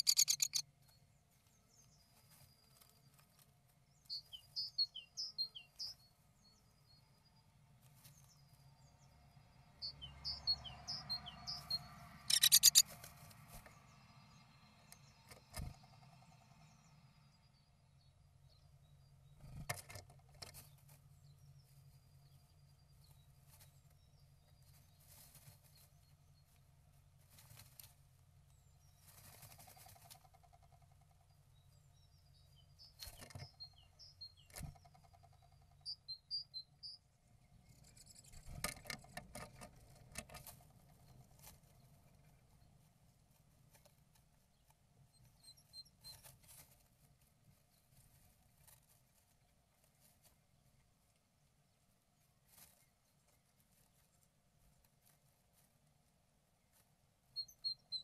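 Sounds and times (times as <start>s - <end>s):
faint bird chirps: 0.0s - 13.0s, 28.5s - 39.2s, 44.4s - 46.7s, 57.2s - 58.0s.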